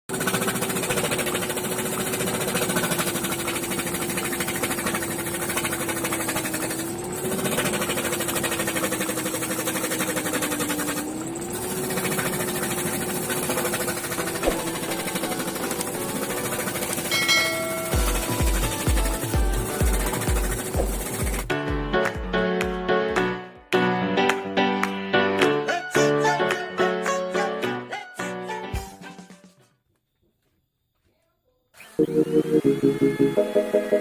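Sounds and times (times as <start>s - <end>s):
small electric machine rattling: 0.1s - 21.5s.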